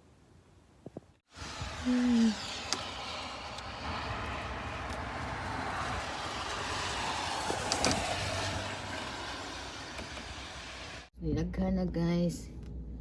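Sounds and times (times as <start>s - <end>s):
car driving: 1.3s - 11.1s.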